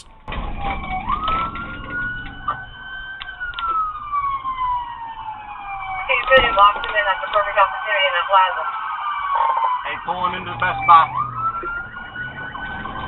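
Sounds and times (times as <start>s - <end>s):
engine and road rumble: 0.0s - 13.0s
police siren wailing: 0.0s - 13.0s.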